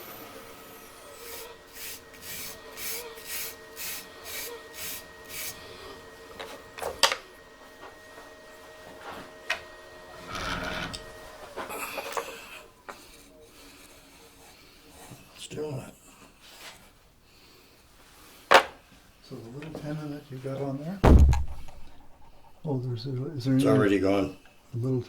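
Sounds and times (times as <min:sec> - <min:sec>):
cutter rasping through wood: 0:00.0 - 0:06.8, 0:09.2 - 0:15.2
motor hum: 0:00.0 - 0:12.8, 0:21.0 - 0:24.6.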